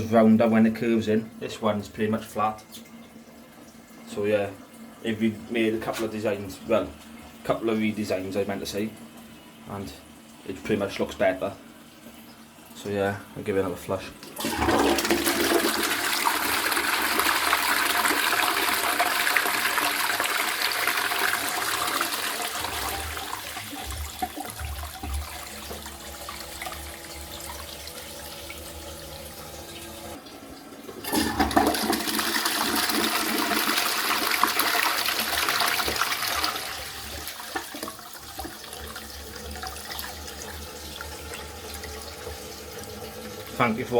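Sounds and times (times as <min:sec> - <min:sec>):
toilet flushing: 0:00.0 - 0:43.9.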